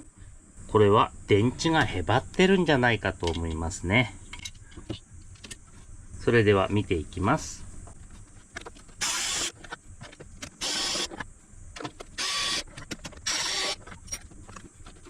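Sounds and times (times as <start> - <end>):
electric screwdriver running: 9.0 - 9.6, 10.6 - 11.2, 12.2 - 13.9.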